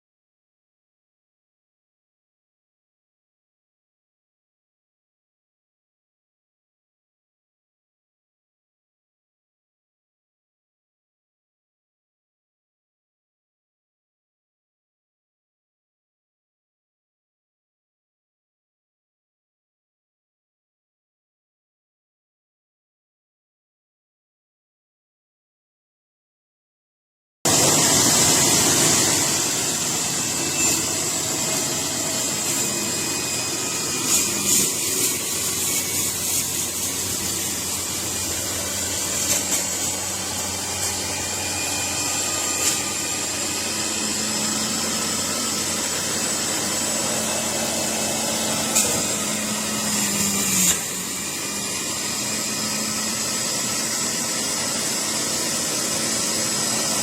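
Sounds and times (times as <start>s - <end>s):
juicer motor whining: 27.5s - 57.0s.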